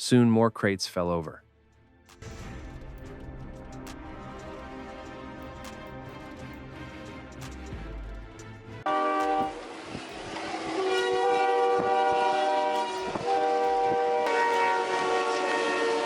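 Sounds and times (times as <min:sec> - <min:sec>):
train horn blasts: 0:08.8 - 0:16.0.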